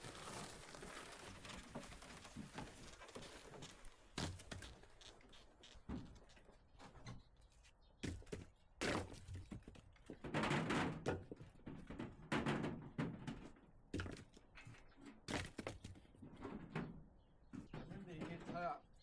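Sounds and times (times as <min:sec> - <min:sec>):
firewood logs clattering: 0:00.0 - 0:05.0, 0:08.0 - 0:16.7.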